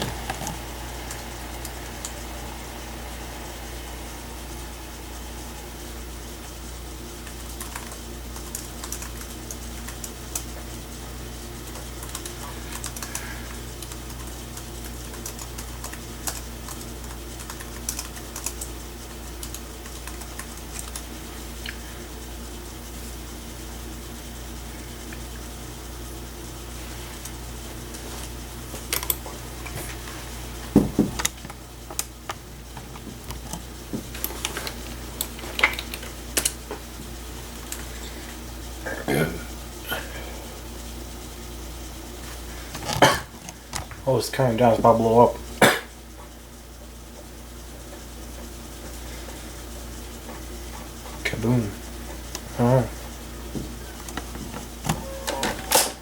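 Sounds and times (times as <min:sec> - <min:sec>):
computer hum: 0:00.0 - 0:56.0
computer keyboard typing: 0:07.2 - 0:10.5, 0:11.7 - 0:18.7, 0:19.4 - 0:21.1.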